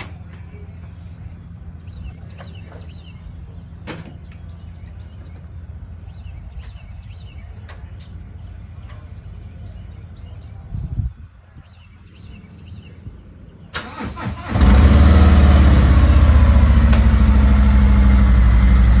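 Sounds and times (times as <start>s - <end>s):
birds chirping: 0.0s - 19.0s
engine idling: 13.8s - 19.0s.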